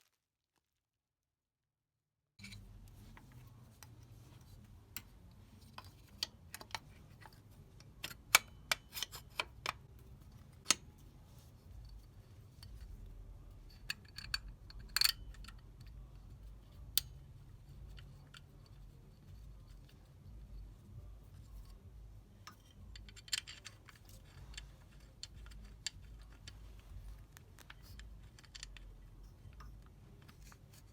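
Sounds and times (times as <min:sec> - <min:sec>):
low steady hum: 0:02.4 - 0:30.9
tools clicking and tapping: 0:04.8 - 0:11.1, 0:13.6 - 0:20.6, 0:21.4 - 0:30.9.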